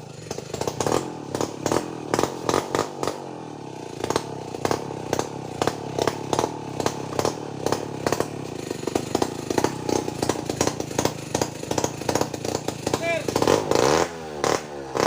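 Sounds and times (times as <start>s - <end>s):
chainsaw engine running: 0.0s - 15.0s
sharp knocks and clatter: 4.0s - 14.6s.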